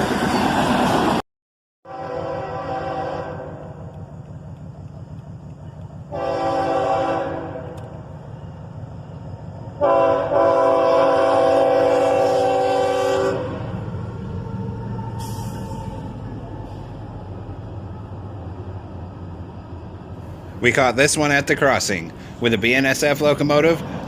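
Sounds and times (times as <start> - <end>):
low rumble of passing train: 0.0 - 1.2, 1.9 - 24.0
locomotive air horn blasts: 1.8 - 3.8, 6.1 - 7.8, 9.8 - 13.8.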